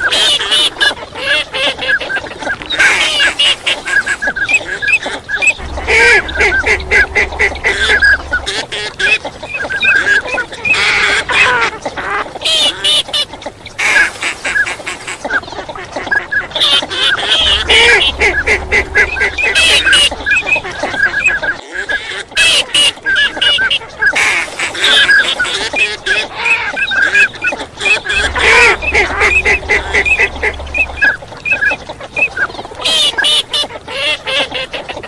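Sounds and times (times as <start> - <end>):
ducks quacking: 2.9 - 9.2, 13.8 - 23.0, 27.6 - 31.8.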